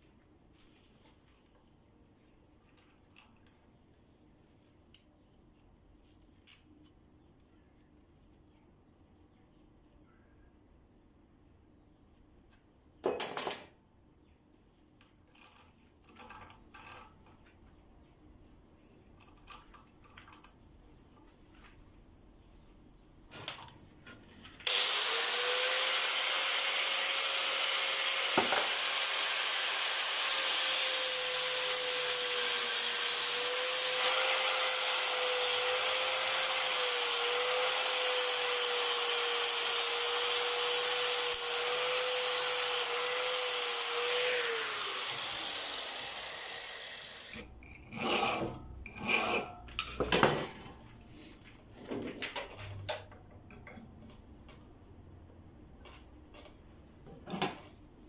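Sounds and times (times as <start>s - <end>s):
electric power tool rasping: 24.7s - 47.4s.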